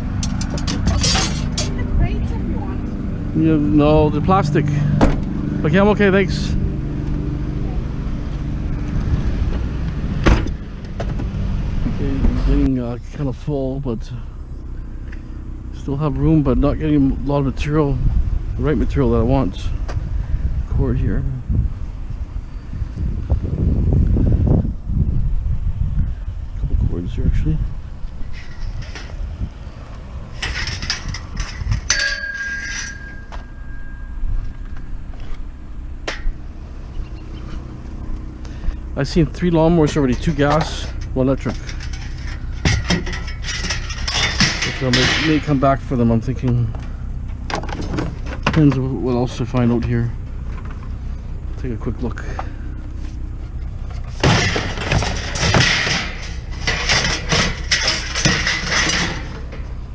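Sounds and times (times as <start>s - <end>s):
scrap metal clattering: 0.0s - 1.9s, 28.2s - 35.4s, 38.5s - 46.3s, 52.2s - 59.9s
struck metal ringing: 28.3s - 35.1s, 35.8s - 38.1s, 39.1s - 47.8s, 53.7s - 59.9s.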